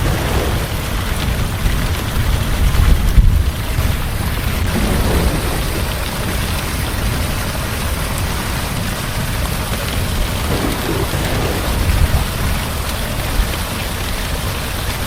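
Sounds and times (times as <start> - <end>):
low rumble: 0.0 - 8.3, 10.3 - 13.7
heavy rain hissing: 0.0 - 15.0.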